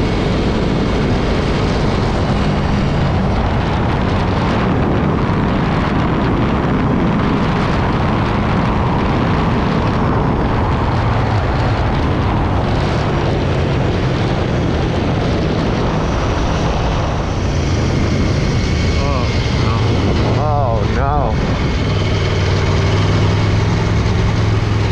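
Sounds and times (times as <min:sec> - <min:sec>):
motorcycle engine running: 0:00.0 - 0:24.9
wind rush on microphone: 0:00.0 - 0:24.9.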